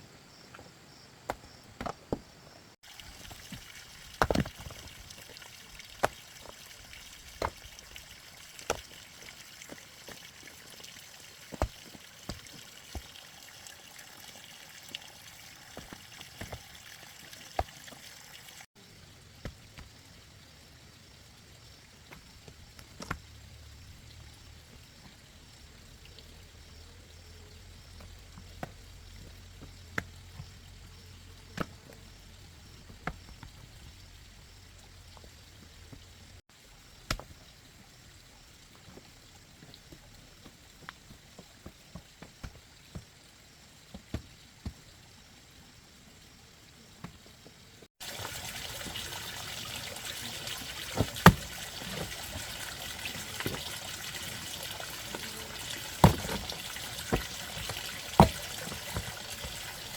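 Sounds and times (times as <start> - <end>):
water trickling or pouring: 2.8 - 18.7, 48.0 - 59.9.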